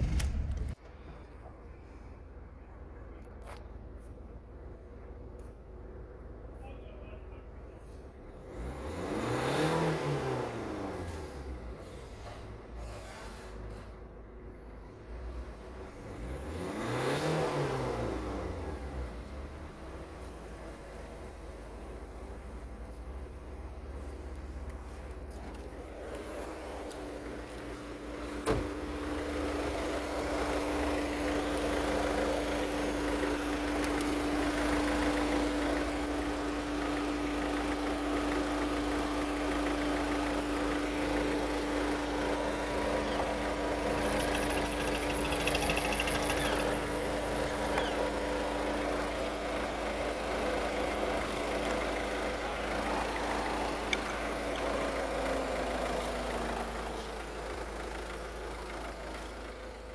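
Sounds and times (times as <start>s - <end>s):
diesel engine idling: 19.1s - 59.9s.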